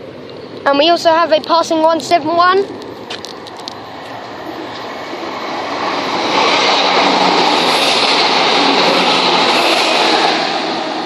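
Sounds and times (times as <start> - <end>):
diesel train passing: 0.0 - 11.0.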